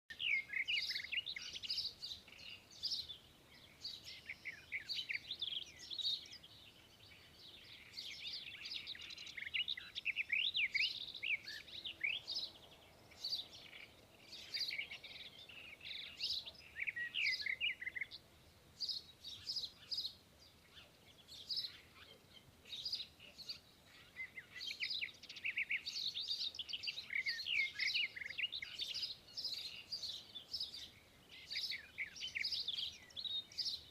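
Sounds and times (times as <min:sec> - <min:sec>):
small birds chirping: 0:00.1 - 0:33.9.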